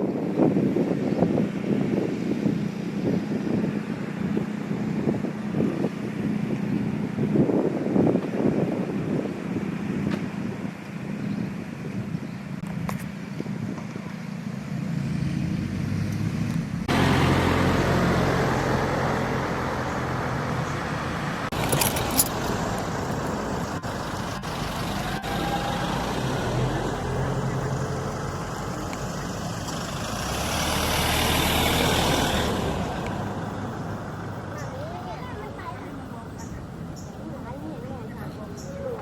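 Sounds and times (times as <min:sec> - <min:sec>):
road and wind noise: 0:00.0 - 0:39.0
vehicle engine humming: 0:00.0 - 0:39.0.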